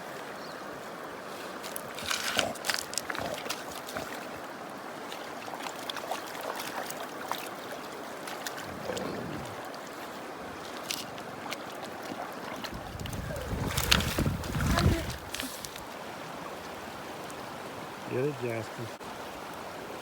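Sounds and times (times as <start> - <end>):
shallow running water: 0.0 - 20.0
sharp splashes and clacks: 1.6 - 4.4, 5.1 - 8.7, 10.6 - 15.8.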